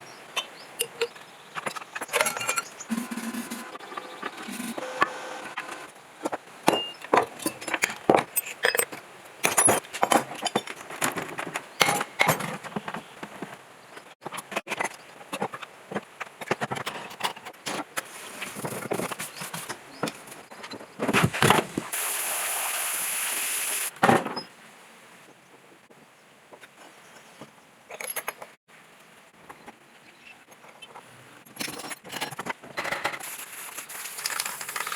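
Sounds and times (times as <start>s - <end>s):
steady hiss: 21.2s - 24.0s, 33.2s - 34.9s.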